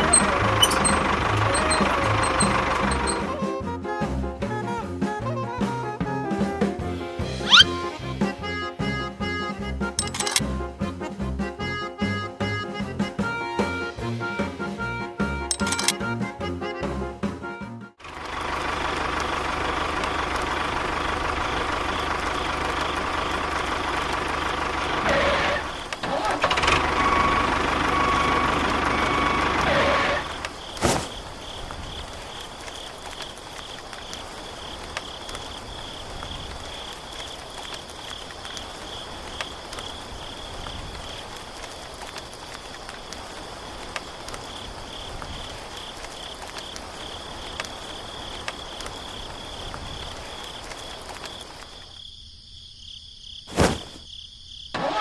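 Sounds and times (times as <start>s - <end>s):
crickets chirping: 0.0s - 3.4s, 7.5s - 10.4s, 15.5s - 16.0s, 18.2s - 54.8s
engine running: 0.0s - 3.4s, 18.0s - 31.3s
sharp click: 10.0s - 10.4s, 15.5s - 16.0s.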